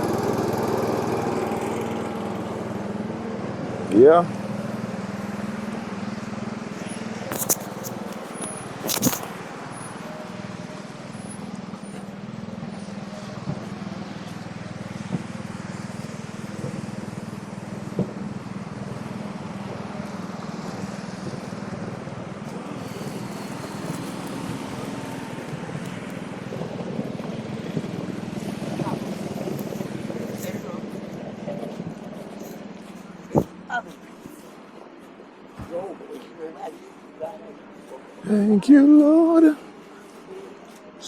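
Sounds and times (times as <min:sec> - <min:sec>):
motor engine humming: 0:10.1 - 0:35.9.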